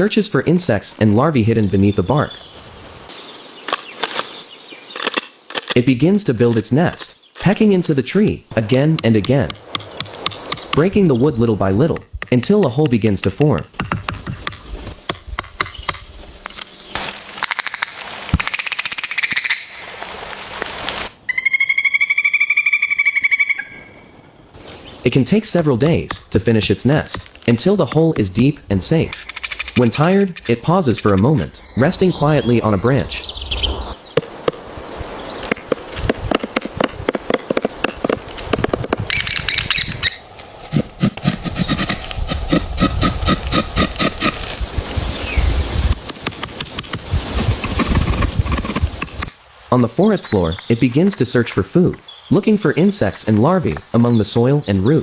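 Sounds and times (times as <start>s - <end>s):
woodpecker pecking wood: 3.6s - 5.8s, 8.5s - 19.7s, 25.5s - 31.4s, 35.4s - 44.6s, 45.8s - 49.4s.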